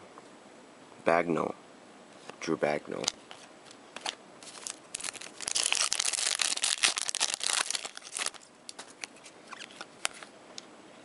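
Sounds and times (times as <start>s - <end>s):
foil wrapper crinkling and tearing: 4.0s - 9.9s.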